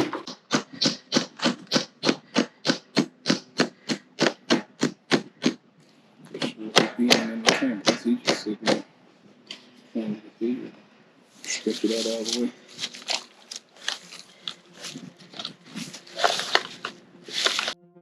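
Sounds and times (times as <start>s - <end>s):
hard knocks: 0.0s - 5.6s, 6.4s - 8.9s.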